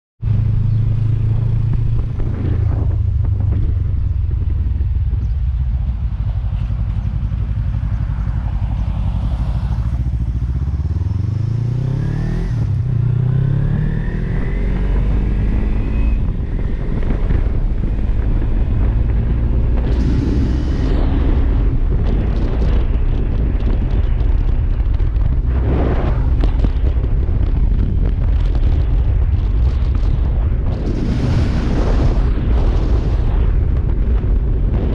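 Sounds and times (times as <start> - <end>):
motorcycle engine running: 0.2 - 34.9
wind noise on microphone: 0.2 - 34.9.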